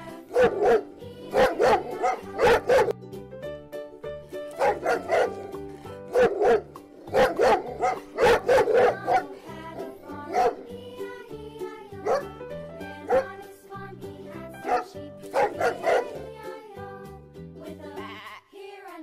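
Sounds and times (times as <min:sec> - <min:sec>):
light background music: 0:00.0 - 0:19.0
dog barking: 0:00.3 - 0:03.0, 0:04.6 - 0:05.5, 0:06.1 - 0:09.4, 0:10.3 - 0:10.6, 0:12.0 - 0:12.3, 0:13.1 - 0:13.3, 0:14.6 - 0:16.2.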